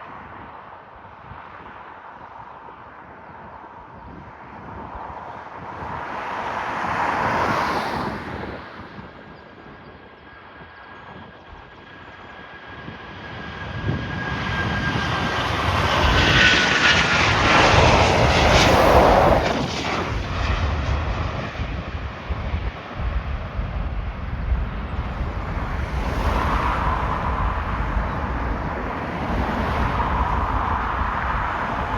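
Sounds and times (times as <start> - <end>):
aircraft engines passing by: 0.0 - 31.9
low rumble: 13.4 - 31.9.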